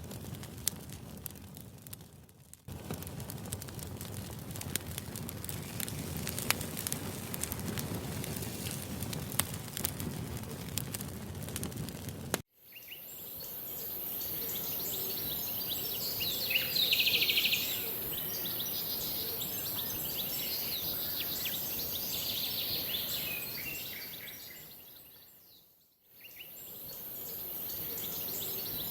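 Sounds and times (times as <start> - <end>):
campfire crackling: 0.0 - 25.1, 26.4 - 28.9
steady high hiss: 12.6 - 24.5
birds chirping: 12.7 - 25.7, 26.3 - 28.9.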